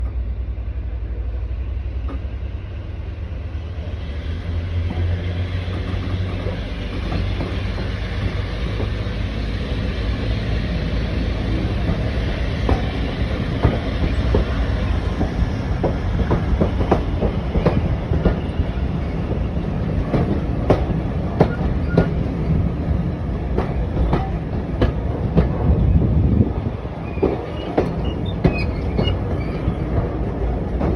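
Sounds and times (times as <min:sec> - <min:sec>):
diesel locomotive engine running: 0:00.0 - 0:30.9
wheels clicking over rail joints: 0:04.9 - 0:09.0, 0:27.0 - 0:30.9.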